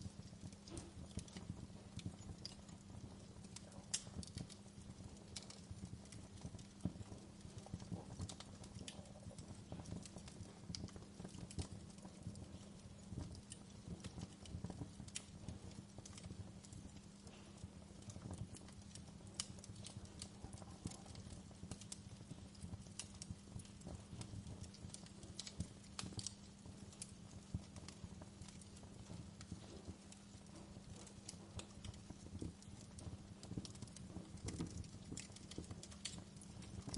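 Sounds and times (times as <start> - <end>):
low fire rumble: 0.0 - 36.9
wood fire crackling and popping: 0.0 - 36.9.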